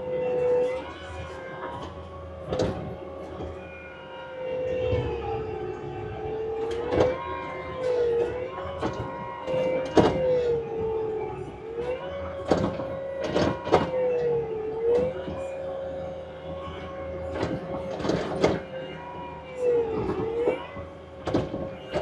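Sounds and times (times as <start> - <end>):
diesel engine and hydraulic whine: 0.0 - 22.0.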